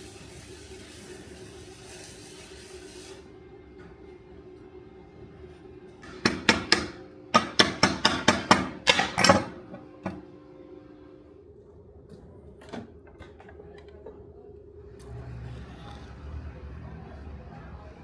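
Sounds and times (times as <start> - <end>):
hammer striking steel on anvil: 6.0 - 9.8.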